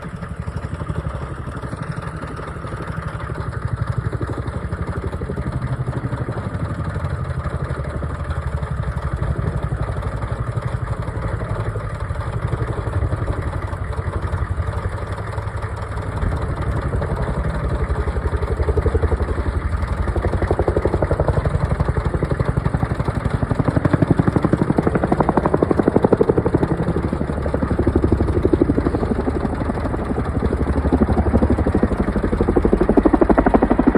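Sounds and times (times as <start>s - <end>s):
helicopter rotor chop: 0.0s - 33.9s
turbine noise: 23.5s - 33.9s.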